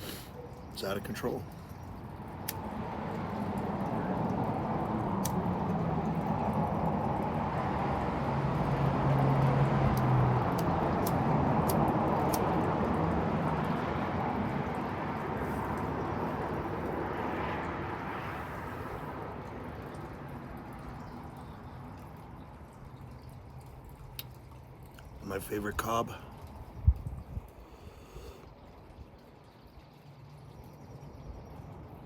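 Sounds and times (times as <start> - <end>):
engine passing by: 2.0 - 22.9.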